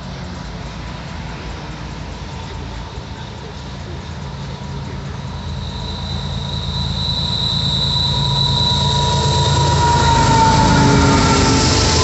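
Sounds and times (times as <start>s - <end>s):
freight train rumble: 0.0s - 12.0s
thin high tones: 4.2s - 12.0s.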